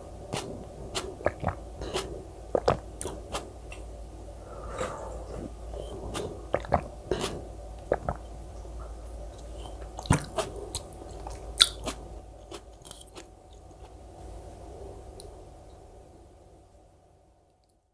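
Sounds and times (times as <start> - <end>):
chewing with crunches: 0.0 - 3.9, 4.5 - 8.3, 9.3 - 14.0
wet mouth clicks: 0.3 - 3.9, 5.3 - 8.3, 9.4 - 14.0.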